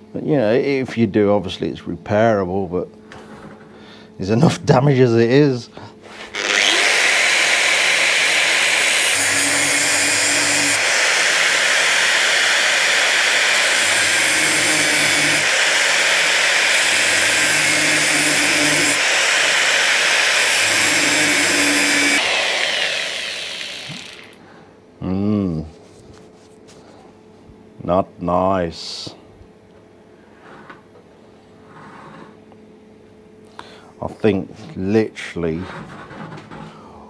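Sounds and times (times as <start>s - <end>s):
grinder cutting steel: 6.2s - 24.4s.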